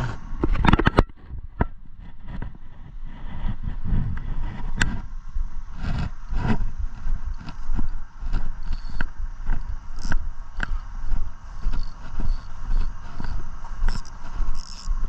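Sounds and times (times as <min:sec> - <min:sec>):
steady low rumble: 0:00.0 - 0:15.0
sharp irregular clicks and knocks: 0:00.4 - 0:02.5, 0:07.3 - 0:10.8, 0:11.6 - 0:15.0.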